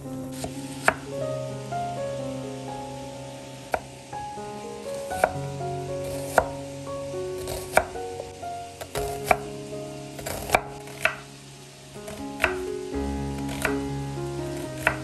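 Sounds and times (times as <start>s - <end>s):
knife slicing onion on board: 10.2s - 11.2s.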